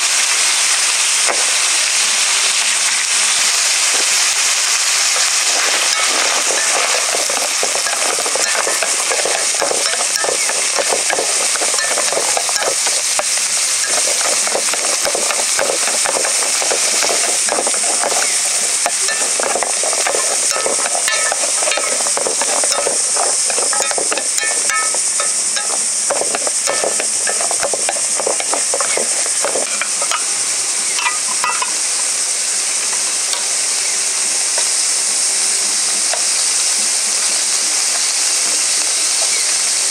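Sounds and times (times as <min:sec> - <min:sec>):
food sizzling in a pan: 0:00.0 - 0:39.9
utensil scraping a pan: 0:05.1 - 0:30.3.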